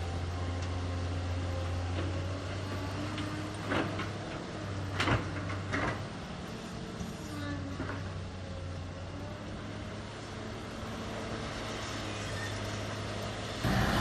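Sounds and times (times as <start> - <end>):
diesel engine running: 13.5 - 14.0.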